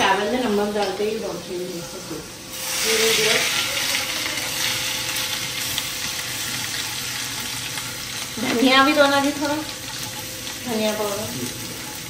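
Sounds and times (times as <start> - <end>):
paste sizzling in hot oil: 2.4 - 12.0.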